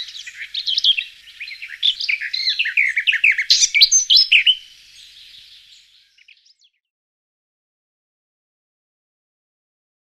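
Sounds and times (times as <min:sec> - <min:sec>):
bird chirping and twittering: 0:00.0 - 0:06.8.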